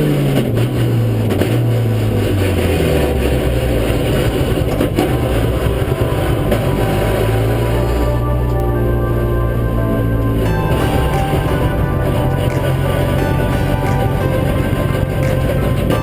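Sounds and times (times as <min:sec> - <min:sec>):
racing car engine: 0:00.0 - 0:16.0.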